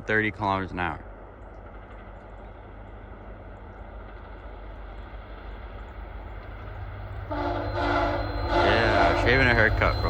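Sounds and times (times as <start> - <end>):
locomotive rumbling: 0.0 - 10.0
train horn chord: 7.3 - 10.0.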